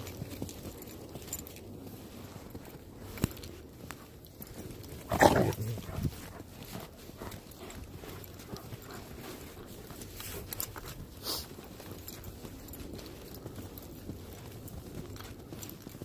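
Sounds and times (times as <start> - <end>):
dog vocalizing loudly: 5.1 - 6.0.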